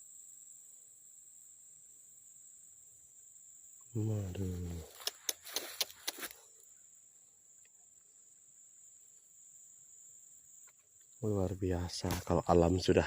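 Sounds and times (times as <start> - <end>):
insects droning: 0.0 - 13.0
sharp clicks: 4.8 - 6.3.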